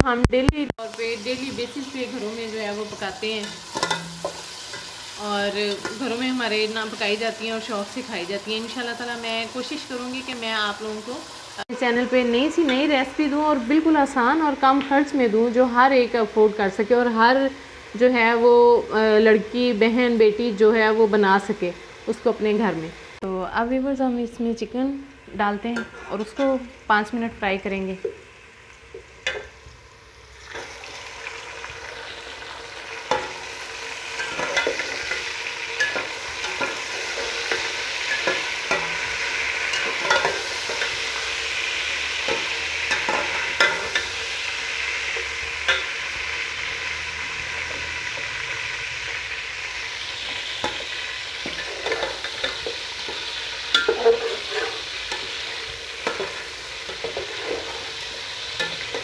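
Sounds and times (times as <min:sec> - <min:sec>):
chicken sizzling in hot oil: 0:00.8 - 0:23.2, 0:26.5 - 0:59.0
spoon knocking and scraping pot: 0:02.8 - 0:04.9, 0:28.9 - 0:29.6, 0:34.2 - 0:41.0, 0:42.3 - 0:44.2, 0:50.6 - 0:55.4, 0:56.0 - 0:58.0.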